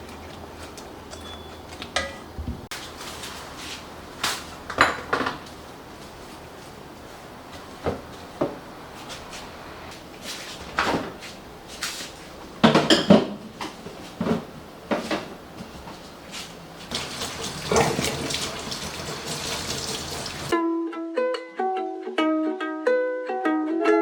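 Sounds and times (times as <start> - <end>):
dishes and pots clinking: 1.1 - 2.4, 4.7 - 5.5, 12.6 - 15.3, 16.9 - 20.5
water running from a tap: 16.9 - 20.6
ukulele music: 20.5 - 24.0.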